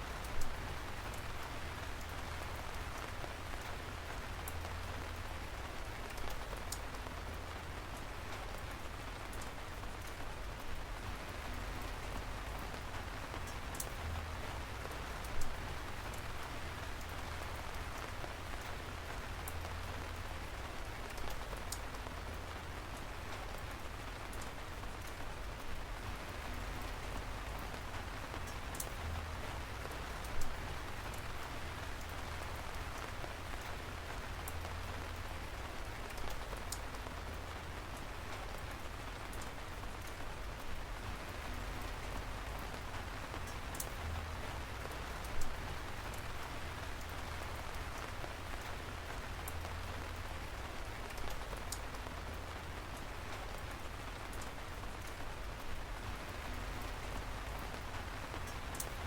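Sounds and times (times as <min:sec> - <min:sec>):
raindrops ticking close by: 0:00.0 - 0:59.0
steady rain falling: 0:00.0 - 0:59.0.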